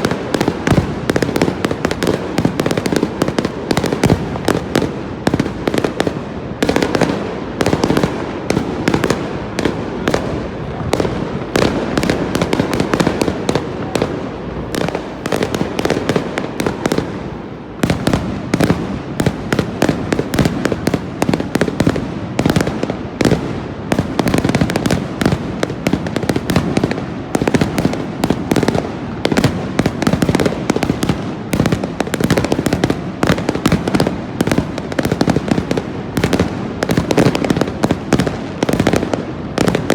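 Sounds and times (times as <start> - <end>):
fireworks bangs: 0.0 - 39.9
rumble of firework booms: 0.0 - 39.9.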